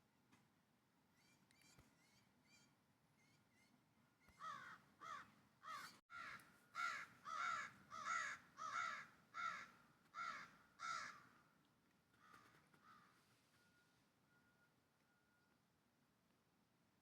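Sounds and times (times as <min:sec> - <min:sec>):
crow cawing: 0:04.4 - 0:11.4, 0:12.2 - 0:13.3.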